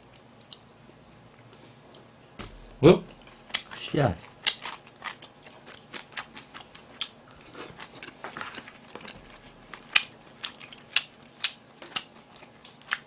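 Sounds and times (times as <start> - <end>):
person chewing food: 0.0 - 0.8, 3.1 - 13.0.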